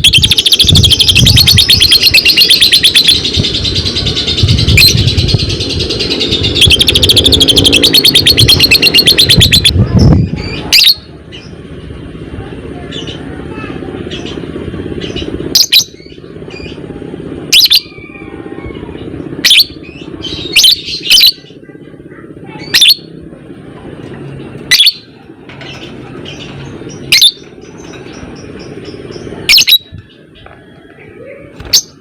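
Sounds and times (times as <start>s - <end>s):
bird shrill calls: 0.0s - 9.8s, 29.4s - 30.0s
steady low hum: 0.0s - 32.0s.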